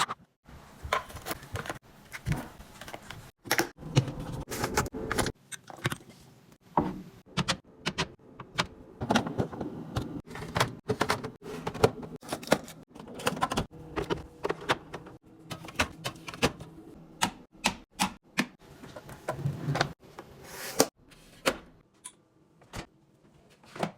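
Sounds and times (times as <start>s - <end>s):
plastic bins clicking and knocking: 7.3s - 20.0s.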